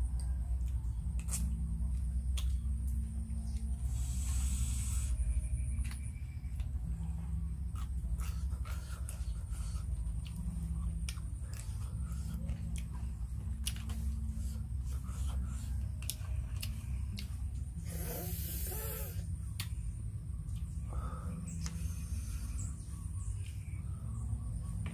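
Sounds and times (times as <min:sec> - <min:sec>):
steady low rumble: 0:00.0 - 0:24.9
chewing: 0:00.1 - 0:04.4, 0:05.8 - 0:20.8.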